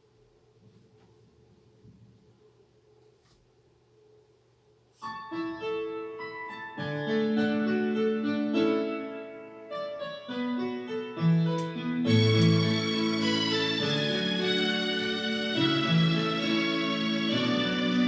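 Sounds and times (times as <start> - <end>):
piano sustained chords: 5.1 - 18.0.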